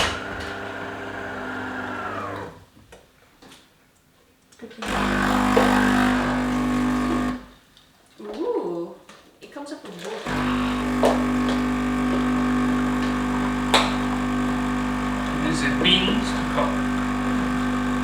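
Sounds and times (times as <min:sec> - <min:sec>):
coffee machine motor humming: 0:00.0 - 0:02.7, 0:04.8 - 0:07.5, 0:10.2 - 0:18.0
water pump buzzing: 0:00.0 - 0:02.7, 0:04.8 - 0:07.5, 0:10.2 - 0:18.0.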